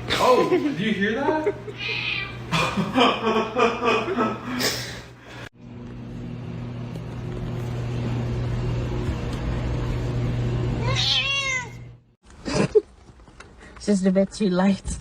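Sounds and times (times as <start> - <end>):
cat meowing: 1.8 - 2.4, 10.8 - 11.9.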